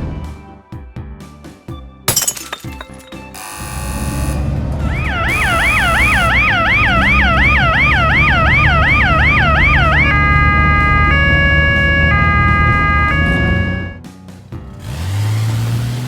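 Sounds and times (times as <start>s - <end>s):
held musical tones: 2.8s - 14.7s
cartoon siren yelping: 4.8s - 14.0s.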